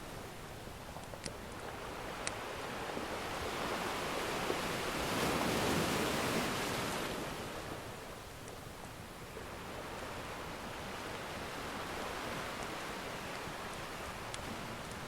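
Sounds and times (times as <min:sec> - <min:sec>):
ocean wave washing: 0:01.7 - 0:08.0, 0:09.3 - 0:15.0.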